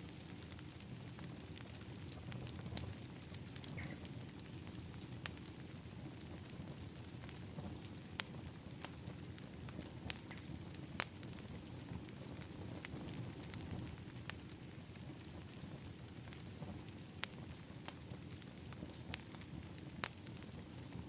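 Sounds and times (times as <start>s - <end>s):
fire crackling pops: 0.0s - 21.0s
low rush of flames: 0.0s - 21.0s.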